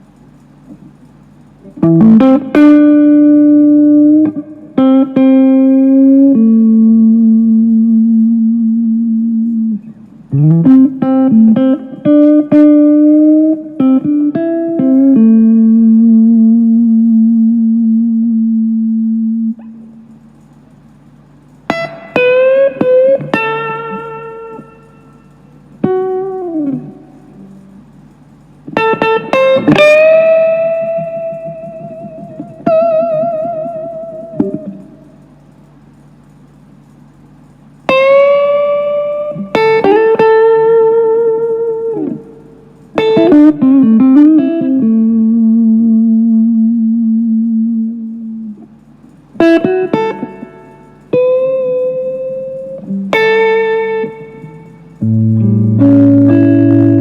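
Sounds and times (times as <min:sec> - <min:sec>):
electric guitar single notes: 0:01.6 - 0:20.2, 0:37.9 - 0:57.0.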